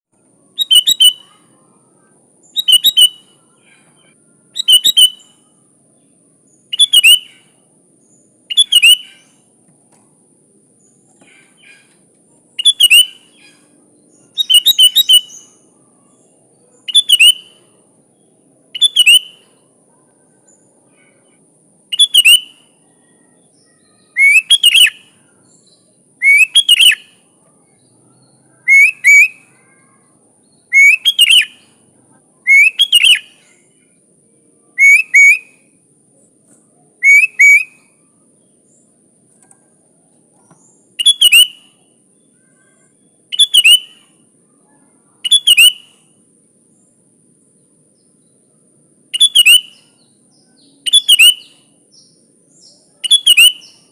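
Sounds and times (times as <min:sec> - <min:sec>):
bird singing quick notes: 0:00.6 - 0:01.4, 0:02.5 - 0:03.3, 0:04.6 - 0:05.4, 0:06.7 - 0:07.5, 0:08.5 - 0:09.4, 0:12.6 - 0:13.7, 0:14.4 - 0:15.5, 0:16.9 - 0:17.6.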